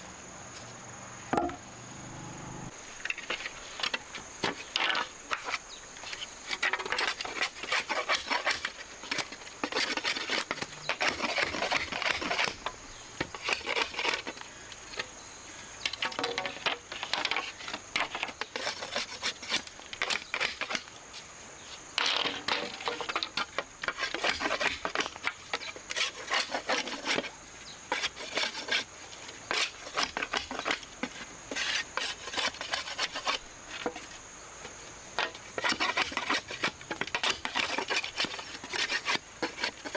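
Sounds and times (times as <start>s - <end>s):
scraping and rubbing strokes: 31.5s - 34.2s, 35.6s - 39.9s.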